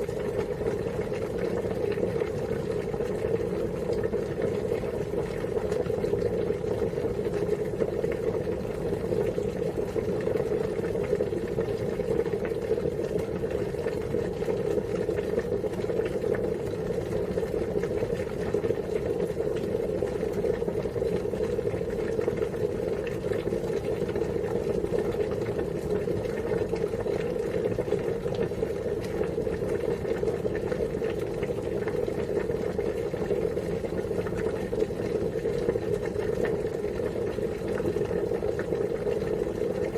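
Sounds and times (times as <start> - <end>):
water boiling and bubbling: 0.0 - 39.9.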